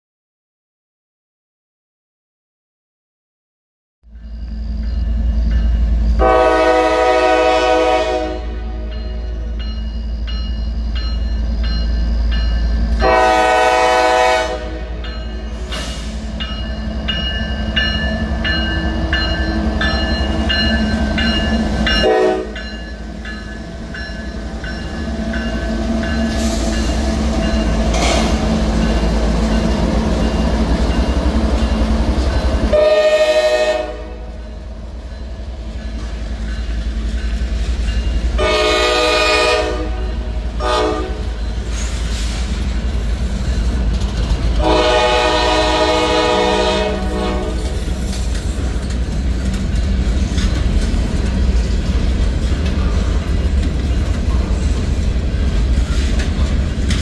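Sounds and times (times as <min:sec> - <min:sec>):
diesel locomotives running: 0:04.1 - 0:57.0
train air horn blasts: 0:06.2 - 0:09.3, 0:13.0 - 0:16.2, 0:22.0 - 0:22.6, 0:32.7 - 0:34.4, 0:38.4 - 0:42.5, 0:44.6 - 0:47.8
wheels clicking over rail joints: 0:47.5 - 0:57.0.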